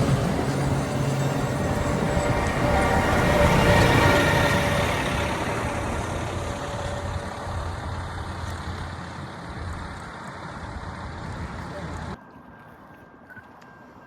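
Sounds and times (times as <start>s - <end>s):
train rumbling on rails: 0.0s - 12.2s.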